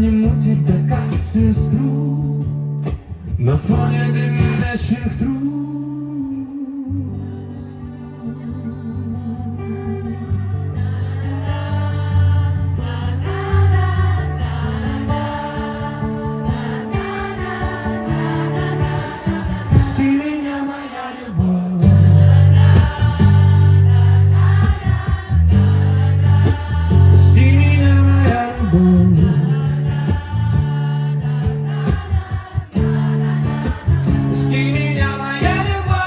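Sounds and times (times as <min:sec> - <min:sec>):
wordless singing: 0:03.4 - 0:36.0
heavy bass line: 0:21.8 - 0:34.6.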